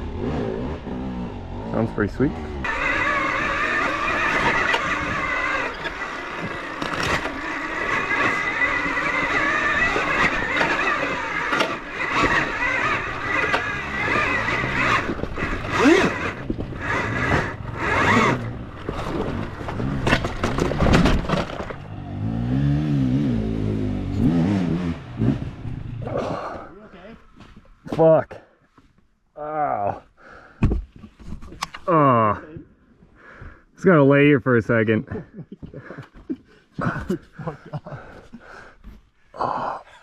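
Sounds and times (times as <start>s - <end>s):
dirt bike engine revving: 0.0s - 26.7s.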